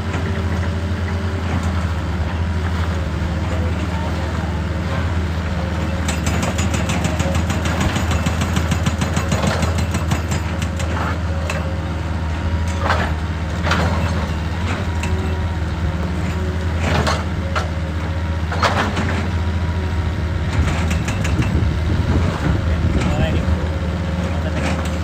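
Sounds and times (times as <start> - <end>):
excavator diesel engine running: 0.0 - 25.0
sharp clanks and knocks: 4.9 - 11.8, 12.6 - 15.4, 16.2 - 17.8, 18.5 - 19.4, 20.5 - 23.4, 24.2 - 25.0.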